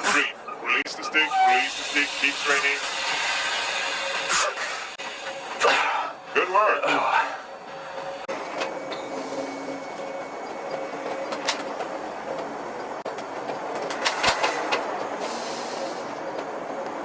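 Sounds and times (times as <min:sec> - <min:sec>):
centrifuge mechanical rumble and hiss: 0:00.0 - 0:09.6.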